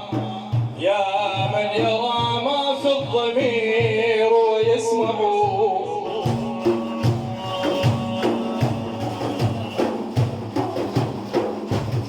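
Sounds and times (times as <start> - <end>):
frame drums beating: 0.0 - 12.0
people singing praise: 5.0 - 11.8.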